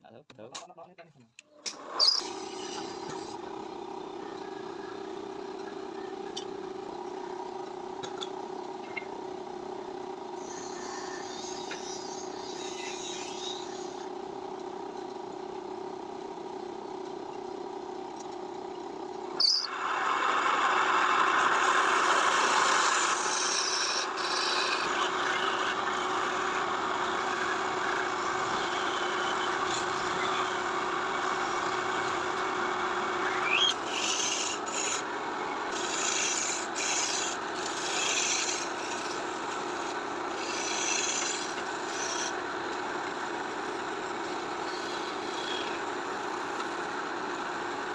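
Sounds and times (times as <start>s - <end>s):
machine hum: 19.7s - 47.9s
rough rasping on wood: 21.4s - 32.4s, 33.3s - 35.1s, 35.7s - 47.9s.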